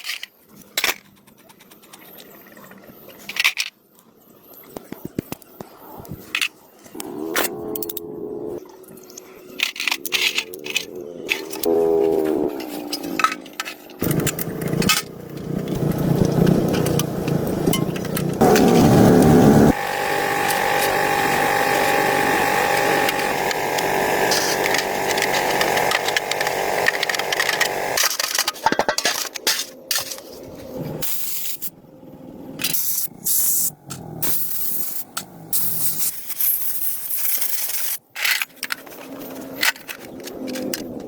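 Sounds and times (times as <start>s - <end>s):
power tool whine: 14.0s - 28.4s
short bursts of workshop tool noise: 18.4s - 28.4s.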